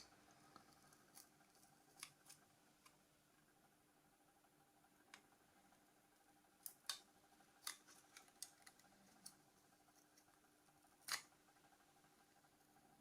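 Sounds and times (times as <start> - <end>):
faint steady hum: 0.0 - 13.0
small parts clicking and tapping: 6.6 - 10.4.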